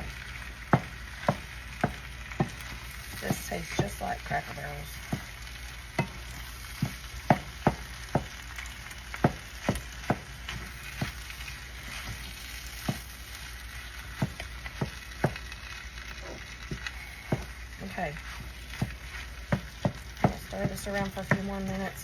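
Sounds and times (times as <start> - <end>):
food sizzling in a pan: 0.0 - 22.0
utensil scraping and knocking pan: 16.2 - 21.9.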